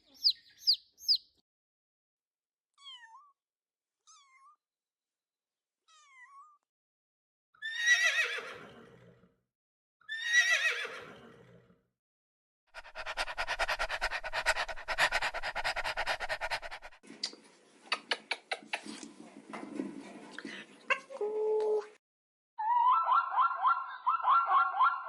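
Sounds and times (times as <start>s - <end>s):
horse whinnying: 7.6s - 8.9s, 10.1s - 11.3s.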